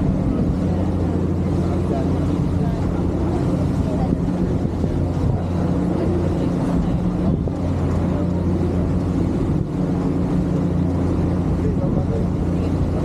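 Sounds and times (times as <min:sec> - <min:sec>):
ferry engines humming: 0:00.0 - 0:13.0
wind noise on microphone: 0:02.2 - 0:10.1.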